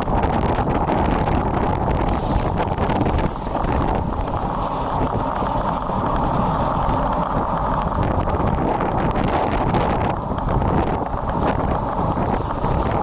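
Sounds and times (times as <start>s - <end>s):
road noise: 0.0s - 13.0s
wind buffeting microphone: 0.0s - 13.0s.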